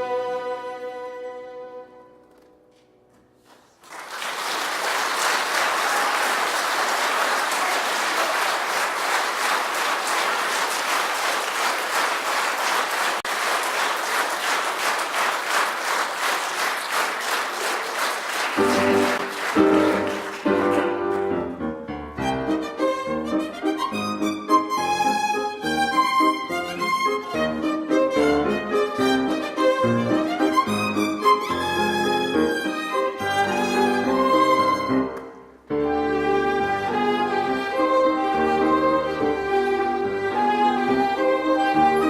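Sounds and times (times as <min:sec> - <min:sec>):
instrumental music with violin: 0:00.0 - 0:02.9, 0:18.6 - 0:42.0
audience applauding: 0:03.5 - 0:21.0.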